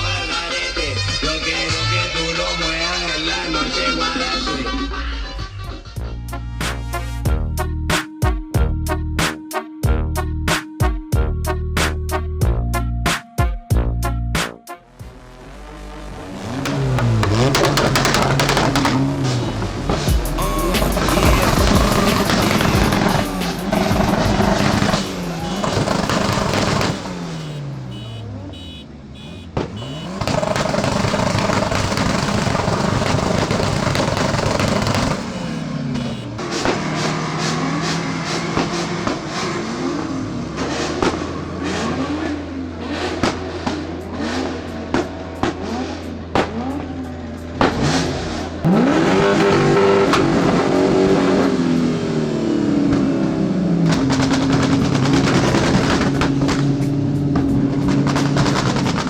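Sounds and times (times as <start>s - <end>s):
car engine revving: 14.9s - 59.0s
exhaust crackling: 14.9s - 59.0s
sharp crack: 16.6s - 20.1s, 21.0s - 27.5s, 29.6s - 35.6s, 57.9s - 59.0s.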